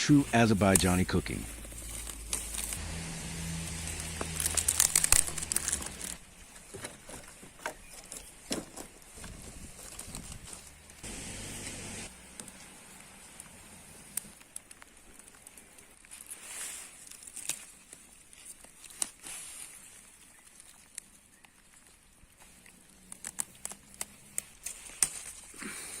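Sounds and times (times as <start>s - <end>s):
light rain hiss: 0.0s - 6.4s, 10.8s - 17.6s.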